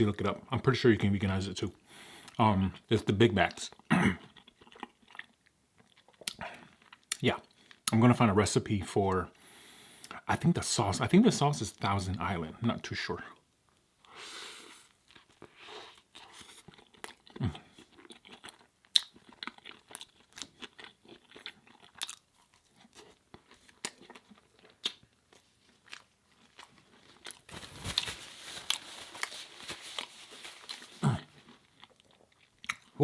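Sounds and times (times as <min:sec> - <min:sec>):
person chewing crunchy food: 0:03.8 - 0:07.8, 0:14.9 - 0:33.0.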